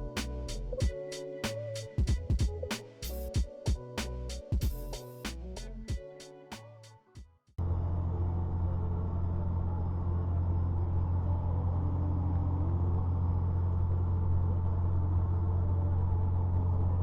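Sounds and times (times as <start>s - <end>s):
road noise: 7.6s - 17.0s
truck diesel engine droning: 7.6s - 17.0s.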